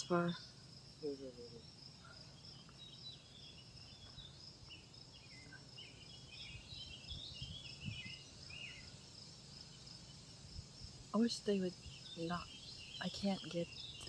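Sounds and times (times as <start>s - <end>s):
high insect trill: 0.0s - 14.0s
small birds twittering: 0.0s - 14.0s
wind rumble on microphone: 6.4s - 8.7s.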